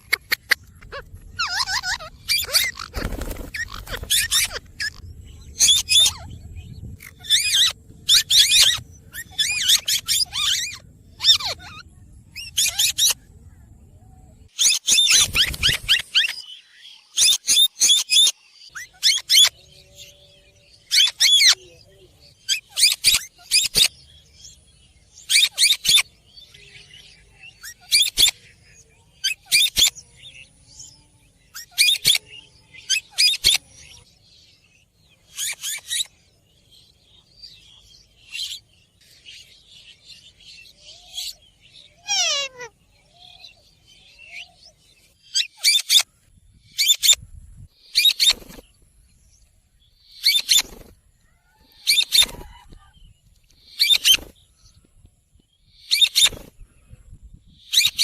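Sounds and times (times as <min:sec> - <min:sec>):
parrot squawking: 0:00.0 - 0:05.0, 0:07.0 - 0:11.8, 0:42.0 - 0:42.7.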